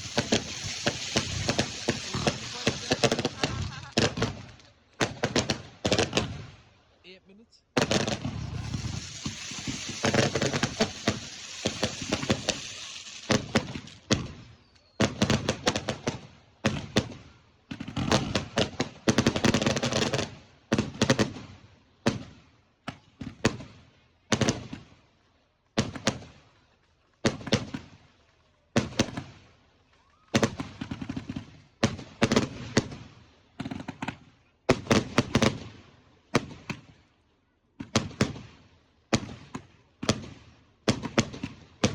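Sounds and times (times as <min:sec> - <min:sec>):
fireworks bangs: 0:00.0 - 0:06.5, 0:07.8 - 0:21.4
fireworks crackling: 0:00.0 - 0:06.5, 0:07.8 - 0:17.2, 0:17.8 - 0:21.4, 0:30.4 - 0:35.8, 0:39.1 - 0:41.9.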